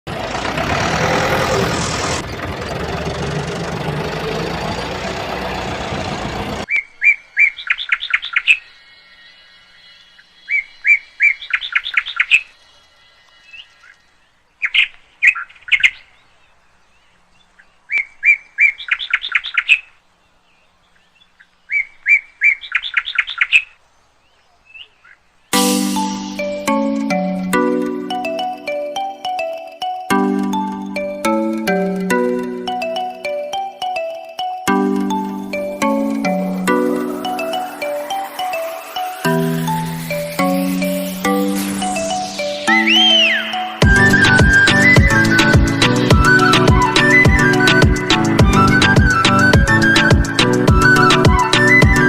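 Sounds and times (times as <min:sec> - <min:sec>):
bird singing high chirps: 0:06.6 - 0:29.5, 0:32.6 - 0:52.0.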